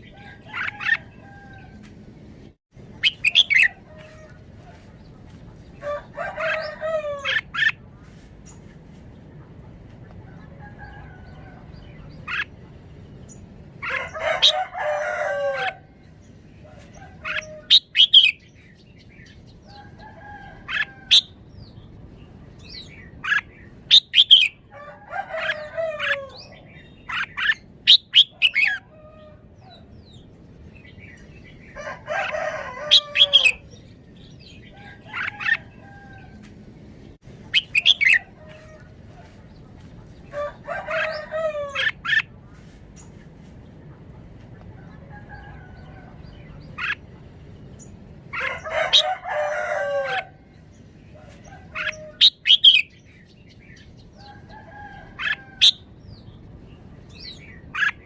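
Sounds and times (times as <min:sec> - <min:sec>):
rooster crowing: 0:05.8 - 0:07.5, 0:13.8 - 0:16.0, 0:24.7 - 0:26.5, 0:31.8 - 0:33.7, 0:40.3 - 0:42.0, 0:48.3 - 0:50.4.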